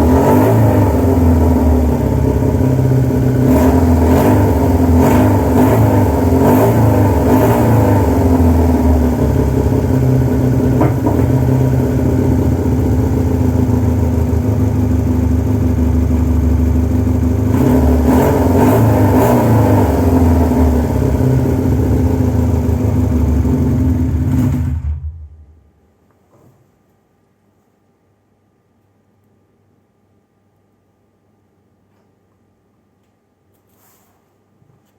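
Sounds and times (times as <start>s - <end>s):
motorcycle engine revving: 0.0s - 25.5s.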